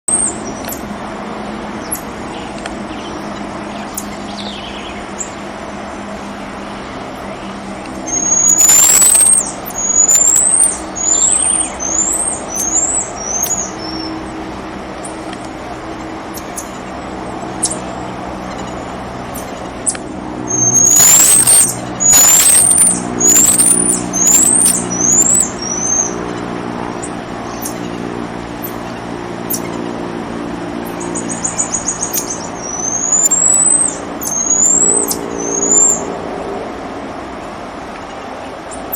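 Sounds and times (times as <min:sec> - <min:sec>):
low hum: 0:00.1 - 0:38.9
marmosets high-pitched chirps: 0:01.8 - 0:05.4, 0:07.8 - 0:14.4, 0:15.9 - 0:28.0, 0:28.6 - 0:29.9, 0:30.8 - 0:36.1.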